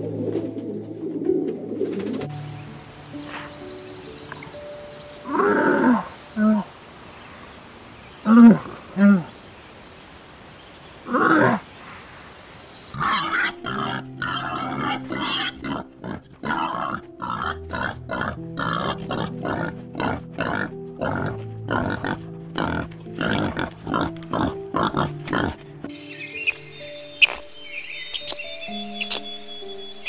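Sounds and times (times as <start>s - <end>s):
background music with low notes: 0.0s - 7.2s, 12.9s - 30.0s.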